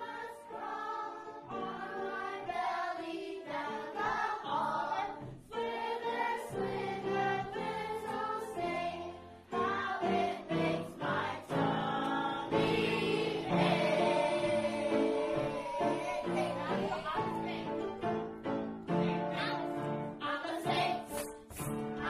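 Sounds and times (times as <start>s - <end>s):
choir singing held notes: 0.0s - 17.9s.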